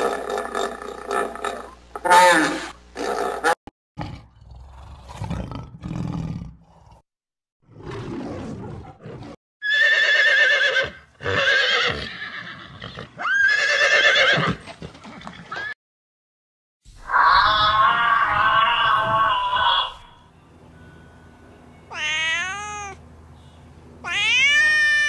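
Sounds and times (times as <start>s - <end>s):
horse whinnying: 9.6s - 14.6s.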